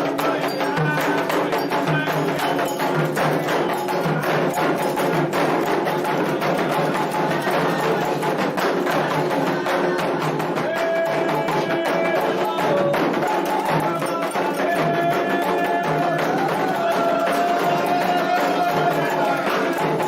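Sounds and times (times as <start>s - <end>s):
struck bell: 0.0s - 9.0s
hand drums playing: 0.0s - 20.0s.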